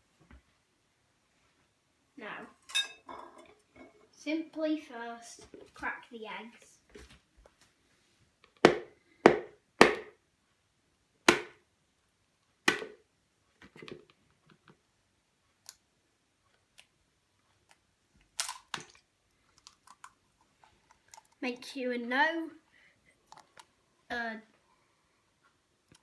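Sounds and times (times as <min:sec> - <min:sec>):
eggs cracking on hard edge: 0:18.3 - 0:19.0, 0:19.6 - 0:20.2.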